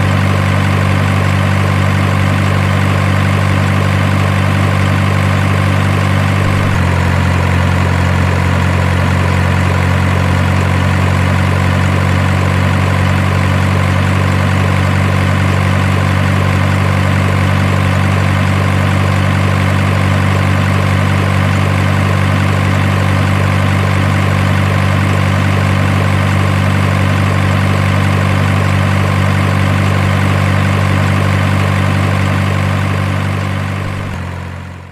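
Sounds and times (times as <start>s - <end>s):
truck engine idling: 0.0s - 34.9s.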